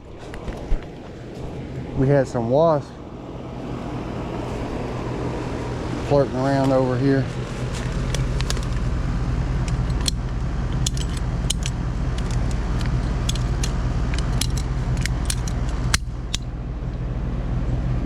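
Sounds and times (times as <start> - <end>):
air conditioner humming: 0.0 - 18.0.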